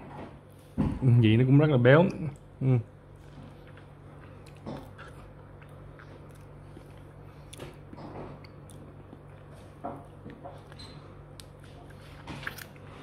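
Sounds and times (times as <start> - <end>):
steady low hum: 0.0 - 13.0
person chewing: 3.1 - 13.0.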